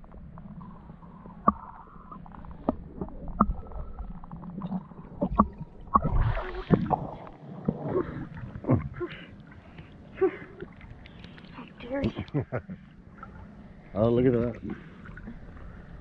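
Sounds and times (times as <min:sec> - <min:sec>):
water sloshing and gurgling: 0:00.0 - 0:16.0.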